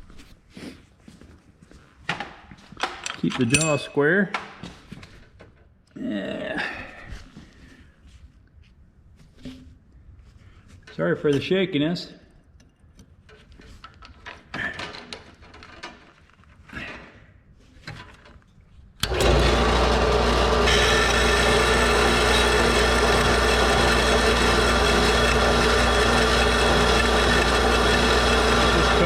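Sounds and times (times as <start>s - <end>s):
bandsaw cutting metal: 2.8s - 3.9s, 19.0s - 29.0s.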